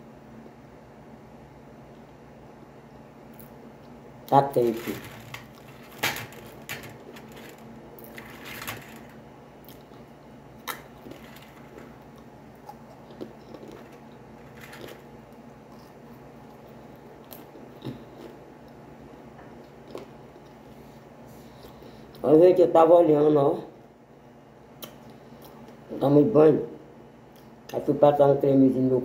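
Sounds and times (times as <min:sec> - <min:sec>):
low steady hum: 0:00.0 - 0:29.0
chewing crackers with crunches: 0:09.6 - 0:18.8.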